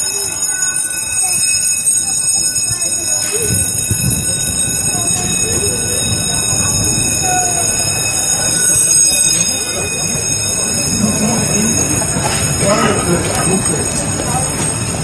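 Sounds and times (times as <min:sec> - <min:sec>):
thin high whine: 0:00.0 - 0:15.0
train rumbling in motion: 0:00.0 - 0:15.0.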